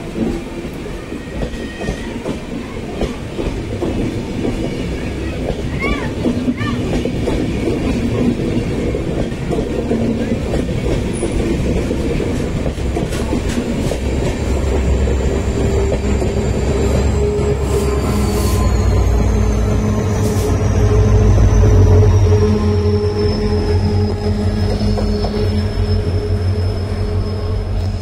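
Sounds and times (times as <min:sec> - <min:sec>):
diesel locomotive drone: 0:00.0 - 0:28.0
train wheels clattering: 0:00.0 - 0:28.0
high wheel squeal: 0:14.4 - 0:28.0.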